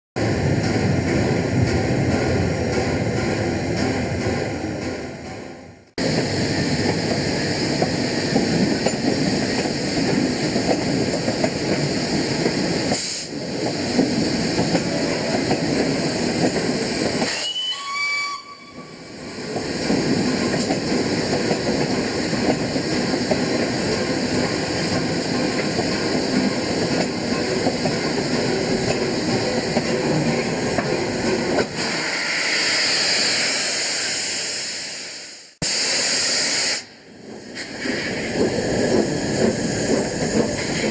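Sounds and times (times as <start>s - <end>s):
steam hiss: 6.0s - 29.8s, 31.7s - 40.9s
steam locomotive exhaust: 6.0s - 31.0s, 31.7s - 40.9s
steam whistle blast: 17.3s - 19.0s.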